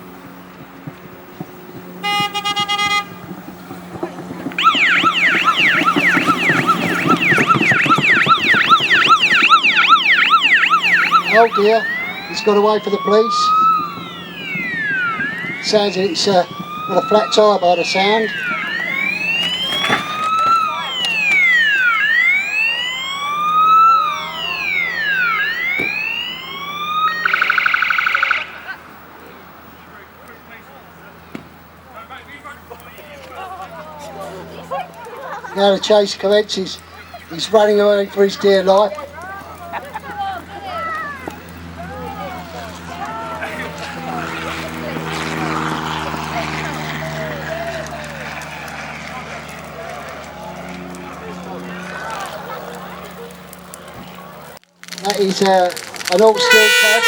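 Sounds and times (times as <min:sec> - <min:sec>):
engine hum: 0:00.0 - 0:57.0
stuttering horn blast: 0:02.0 - 0:27.7, 0:56.1 - 0:57.0
police siren warbling: 0:02.0 - 0:29.4, 0:41.0 - 0:55.2, 0:55.8 - 0:57.0.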